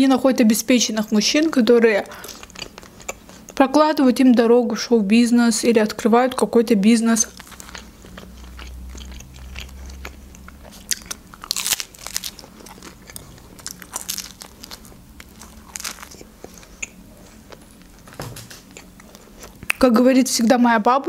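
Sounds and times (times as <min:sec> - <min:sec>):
crunchy pizza chewing: 0:02.0 - 0:03.6, 0:07.2 - 0:19.8.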